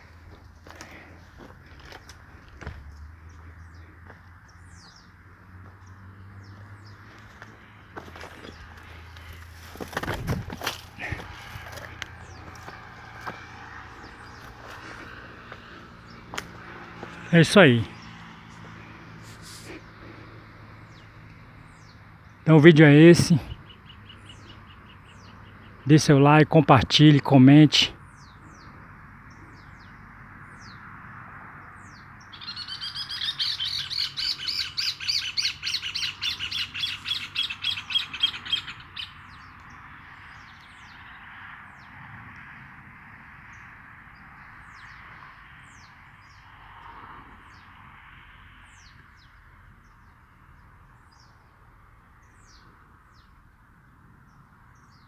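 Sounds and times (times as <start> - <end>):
harsh repeated bird notes: 22.4 - 28.0, 32.3 - 39.2
high falling bird chirps: 32.3 - 39.5.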